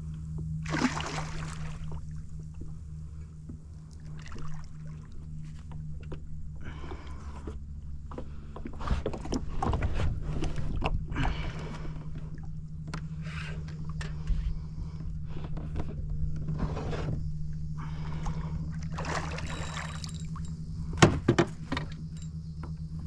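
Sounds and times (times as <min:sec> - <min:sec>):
steady low hum: 0:00.0 - 0:23.0
water splashing against kayak: 0:00.6 - 0:02.2, 0:18.0 - 0:22.0
scraping and knocking on kayak hull: 0:08.2 - 0:11.0.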